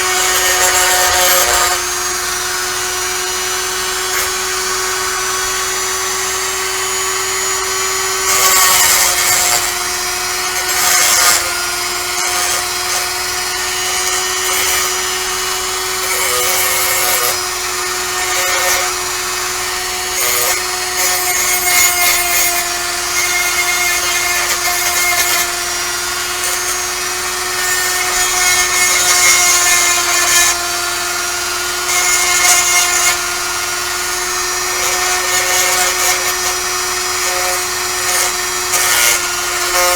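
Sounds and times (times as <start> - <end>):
rotary tool whine: 0.0 - 39.9
bit rasping against metal: 8.2 - 17.5, 20.1 - 30.6.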